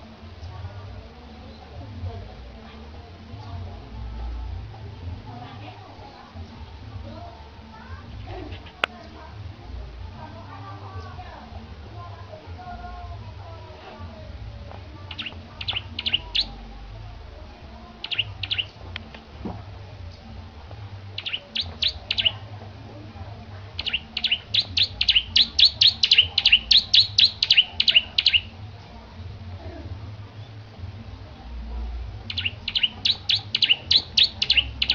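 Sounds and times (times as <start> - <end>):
bird singing high chirps: 15.1 - 16.6, 18.0 - 18.8, 21.2 - 22.4, 23.8 - 28.6, 32.3 - 34.9.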